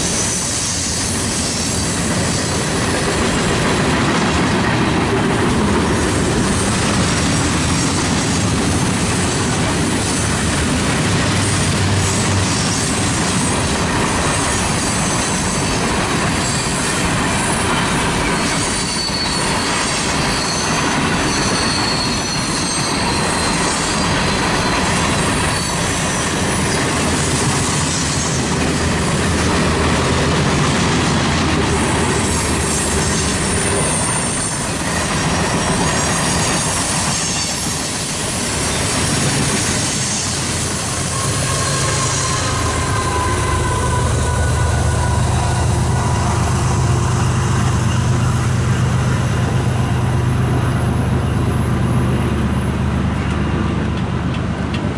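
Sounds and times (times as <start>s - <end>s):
high-pitched wheel squeals: 0.0s - 2.6s, 16.4s - 28.6s, 32.2s - 49.0s
train wheels on rails: 0.0s - 54.9s.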